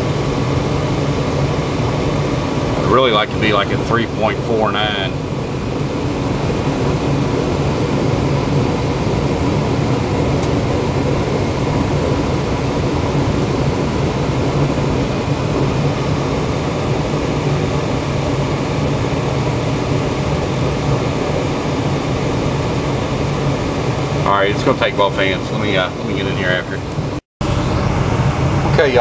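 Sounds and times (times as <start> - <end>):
gas furnace burners roaring: 0.0 - 29.0.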